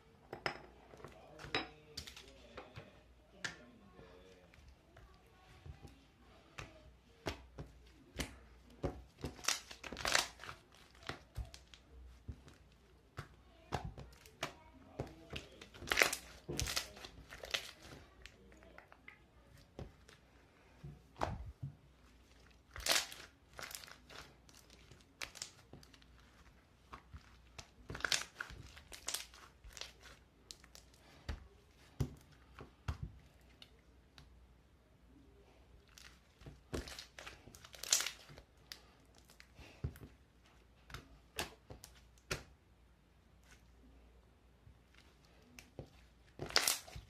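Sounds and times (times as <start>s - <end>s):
thin material crinkling and tearing: 9.2s - 11.9s, 15.3s - 18.8s, 21.4s - 31.1s, 35.8s - 39.5s, 44.9s - 47.0s.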